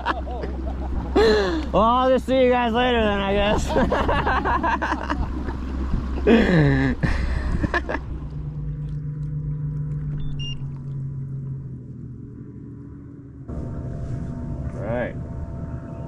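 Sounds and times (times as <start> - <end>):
boat motor humming: 0.0 - 16.0
water splashing: 5.3 - 12.6.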